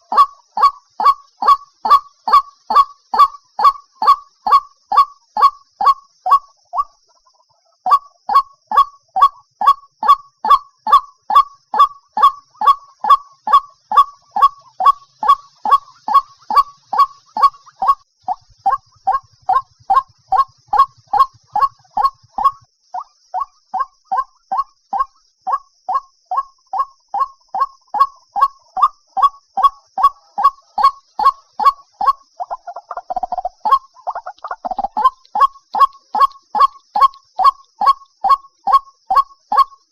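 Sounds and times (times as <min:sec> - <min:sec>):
waterhen harsh kwak calls: 0:07.9 - 0:39.8.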